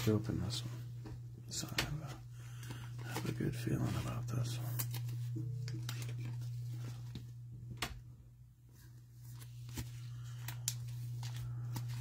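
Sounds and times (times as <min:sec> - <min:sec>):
steady low hum: 0:00.0 - 0:12.0
cards clicking and rustling: 0:01.7 - 0:08.0, 0:09.3 - 0:12.0.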